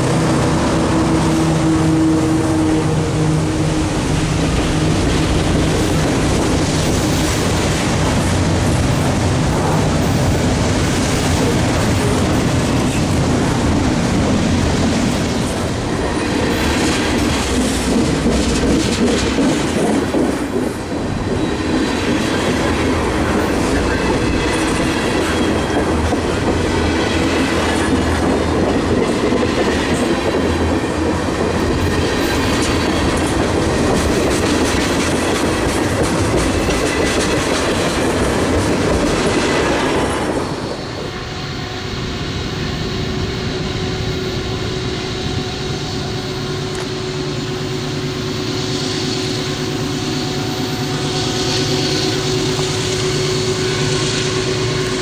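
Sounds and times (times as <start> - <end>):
train wheels clattering on rails: 0.0 - 41.1.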